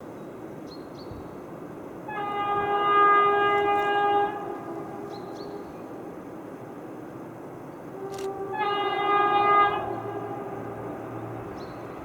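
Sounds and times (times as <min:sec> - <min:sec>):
locomotive horn blast: 0:02.1 - 0:06.3, 0:07.9 - 0:12.0.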